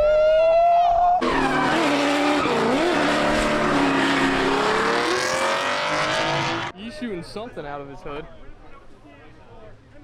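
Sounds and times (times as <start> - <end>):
car engine revving: 1.2 - 6.7
tyres squealing: 1.2 - 6.7.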